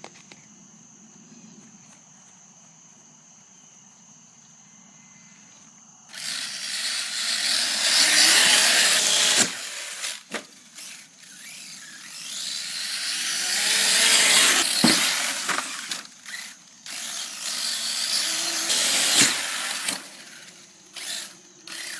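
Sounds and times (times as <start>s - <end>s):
rc car motor whine: 6.1s - 21.9s.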